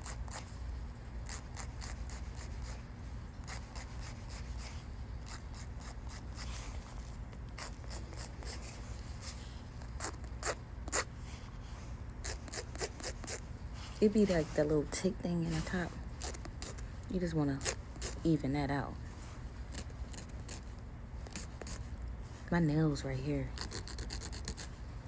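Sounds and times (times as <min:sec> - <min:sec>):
nail file rasping: 0:00.0 - 0:00.5, 0:01.2 - 0:11.1, 0:12.2 - 0:13.4, 0:15.6 - 0:16.8, 0:17.5 - 0:18.2, 0:19.7 - 0:21.9, 0:23.6 - 0:24.8.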